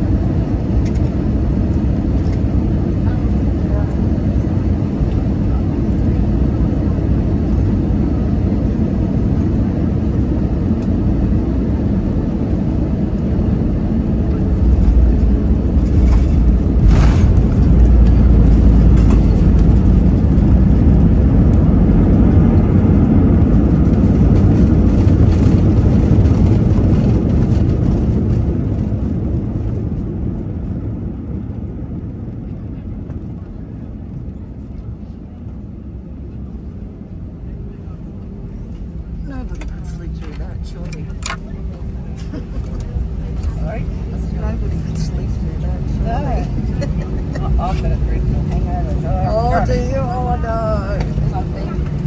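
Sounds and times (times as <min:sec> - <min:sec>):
aircraft cabin noise: 0:00.0 - 0:52.0
loud braking rumble: 0:13.5 - 0:27.6.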